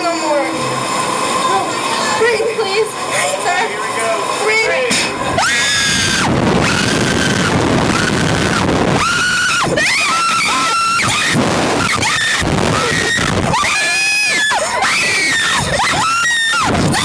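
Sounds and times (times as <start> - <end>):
wind rushing over microphone: 5.2 - 9.9, 10.9 - 13.6
riders screaming: 5.3 - 17.0.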